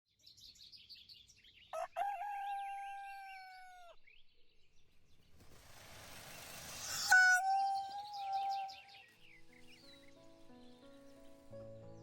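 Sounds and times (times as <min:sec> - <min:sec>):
small birds chirping: 0:00.2 - 0:12.0
rooster crowing: 0:01.8 - 0:04.0.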